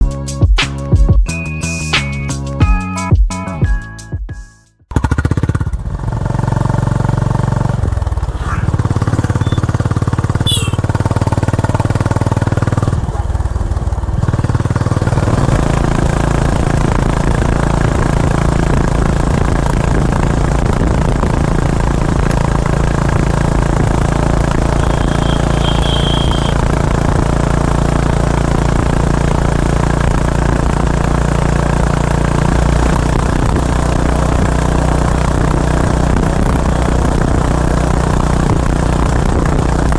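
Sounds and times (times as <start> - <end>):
motorcycle engine running: 4.9 - 39.9
wind noise: 15.2 - 25.2.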